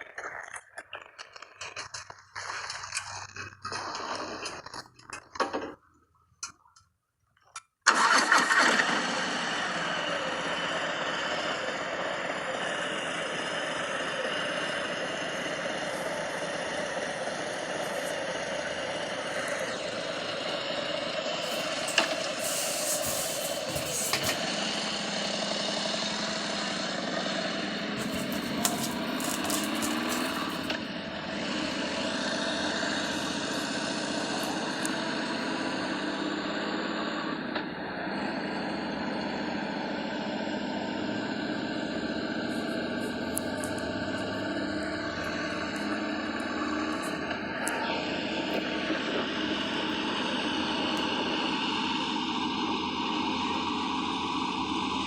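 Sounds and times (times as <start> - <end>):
motorcycle engine: 10.4 - 35.2.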